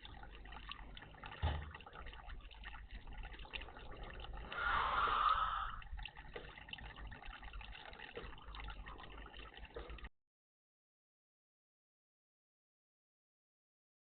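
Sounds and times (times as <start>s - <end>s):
faint dripping and ticking: 0.0s - 10.1s
water splashing in bird bath: 0.0s - 10.1s.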